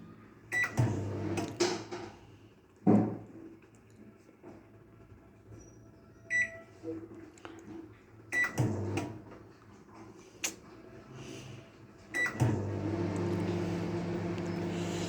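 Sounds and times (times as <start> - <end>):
microwave humming: 0.7 - 1.6, 8.5 - 9.3, 12.2 - 15.0.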